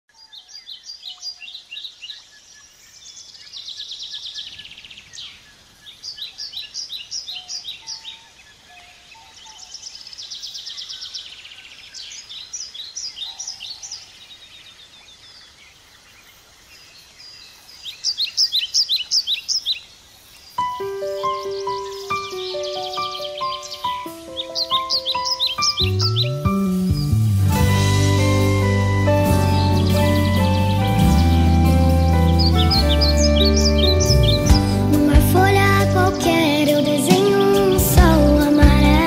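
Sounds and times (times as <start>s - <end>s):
birds chirping and trilling: 0.1s - 39.0s
lower whistled bird notes: 20.6s - 35.1s.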